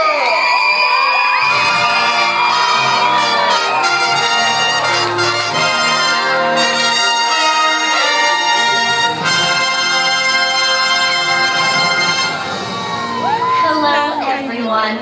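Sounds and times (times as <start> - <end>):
orchestral brass chords: 1.4 - 13.2.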